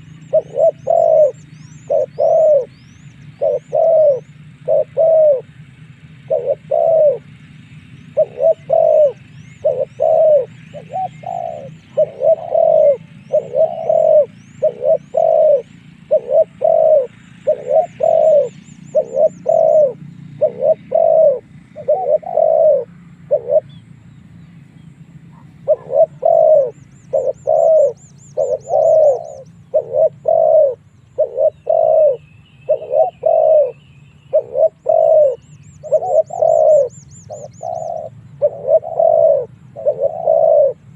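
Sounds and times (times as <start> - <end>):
dove cooing: 0.0 - 24.0, 25.1 - 40.9
small birds trilling: 0.0 - 40.9.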